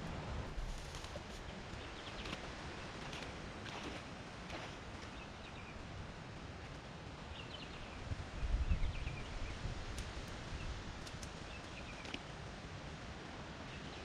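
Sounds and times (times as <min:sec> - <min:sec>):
small birds chirping: 0:01.4 - 0:02.9, 0:10.6 - 0:12.2.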